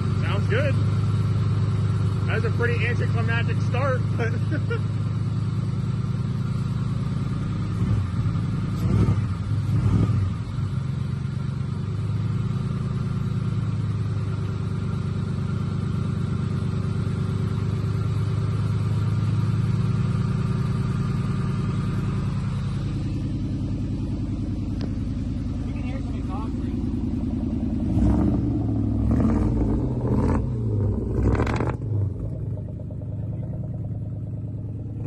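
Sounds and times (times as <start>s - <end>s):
car engine idling: 0.0s - 35.0s
man talking: 0.2s - 0.8s, 2.3s - 4.8s, 25.6s - 26.9s.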